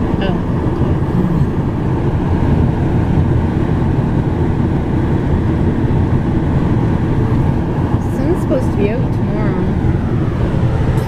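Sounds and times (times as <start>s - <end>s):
car driving rumble from inside: 0.0s - 11.0s.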